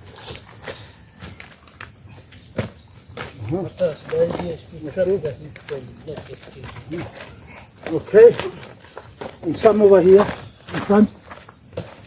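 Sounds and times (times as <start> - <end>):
high-pitched insect chorus: 0.0 - 12.0
distant voices talking: 3.3 - 8.8.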